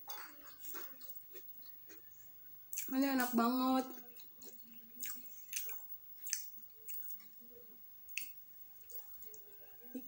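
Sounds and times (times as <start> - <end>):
person chewing with wet smacks: 0.1 - 7.4, 8.1 - 9.5.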